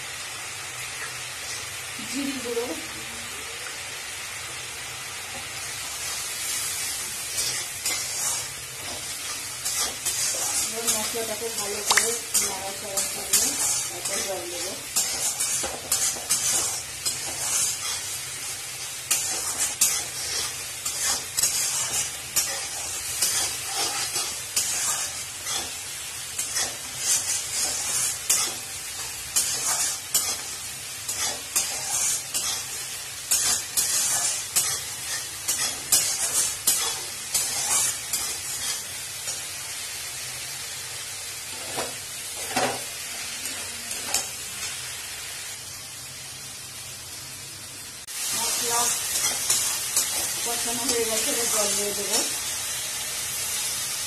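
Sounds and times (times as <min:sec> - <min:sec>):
spice paste sizzling in oil: 0:00.0 - 0:54.0
metal spatula scraping a wok: 0:06.8 - 0:39.4, 0:41.5 - 0:44.3.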